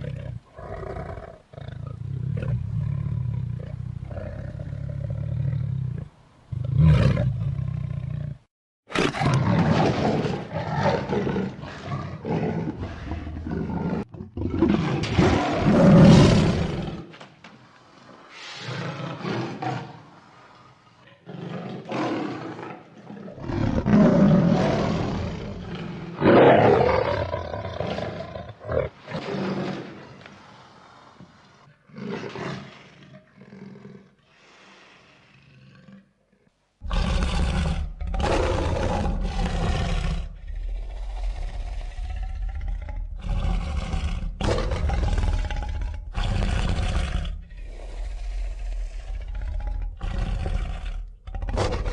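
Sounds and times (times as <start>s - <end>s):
animal roars and growls: 0.0s - 17.2s, 18.3s - 36.2s, 36.8s - 51.9s.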